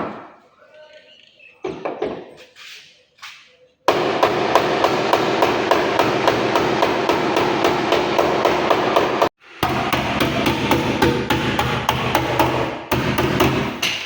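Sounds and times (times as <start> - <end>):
hammer blows on car bodywork: 3.9 - 14.0.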